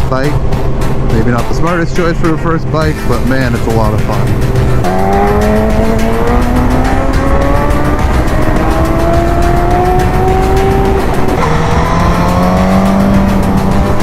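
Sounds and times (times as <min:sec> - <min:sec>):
motorcycle engine accelerating: 0:04.0 - 0:14.0.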